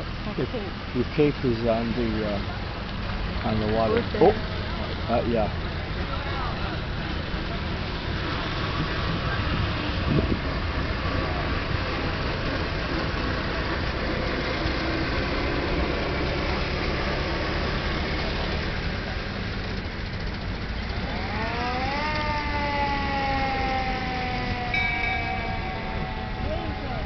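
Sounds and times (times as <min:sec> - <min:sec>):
car engines rumbling: 0:00.0 - 0:27.0
siren winding up and down: 0:20.9 - 0:27.0.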